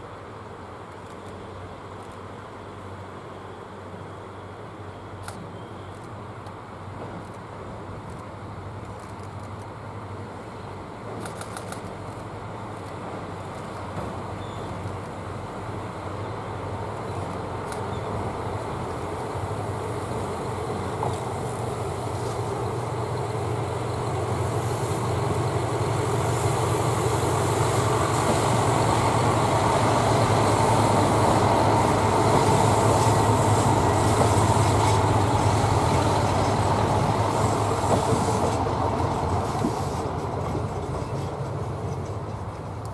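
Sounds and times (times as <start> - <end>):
diesel railcar engines droning: 0.0 - 42.9
wheels rumbling on rails: 5.4 - 42.9.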